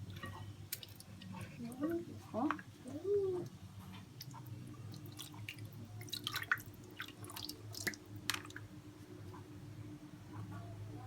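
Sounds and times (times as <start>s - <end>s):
wet squishes of chicken handled: 0.0s - 1.7s, 4.0s - 8.6s.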